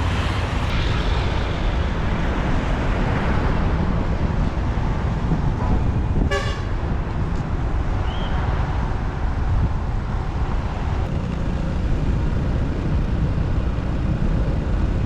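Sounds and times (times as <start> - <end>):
motorbike engine and wind rumble: 0.0 - 15.0
vehicle horn beep: 6.3 - 6.7.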